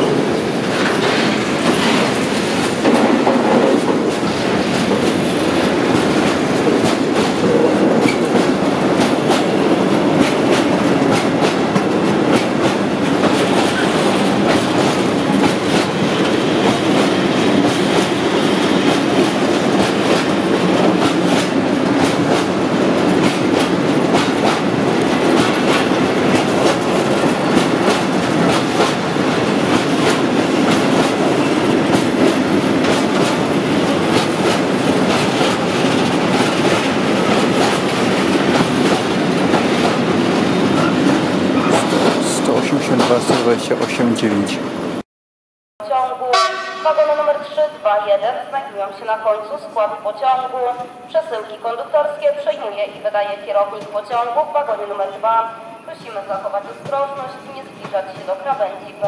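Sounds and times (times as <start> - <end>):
freight train rolling past: 0.0 - 45.0.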